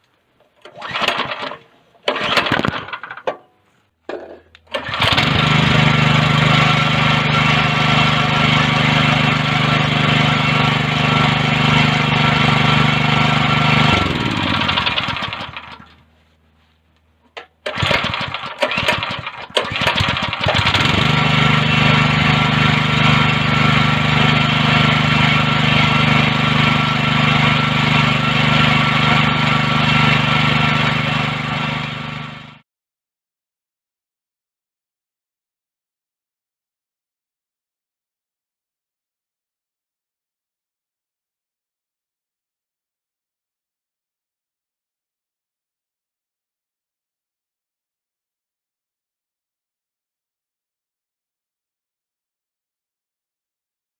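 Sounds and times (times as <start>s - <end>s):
small engine running: 4.7s - 16.0s, 17.6s - 32.6s.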